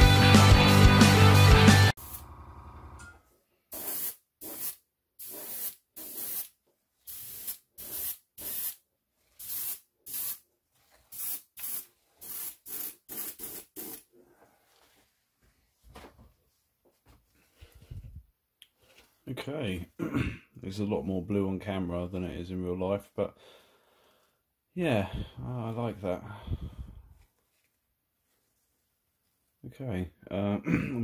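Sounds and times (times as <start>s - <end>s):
rock music: 0.0s - 2.0s
airbrush spraying in short bursts: 3.7s - 14.1s.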